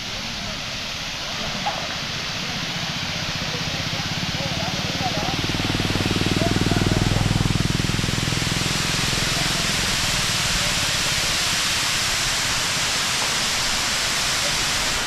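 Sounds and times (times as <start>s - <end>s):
water rushing over a spillway: 0.0s - 15.0s
low droning hum: 4.0s - 10.3s.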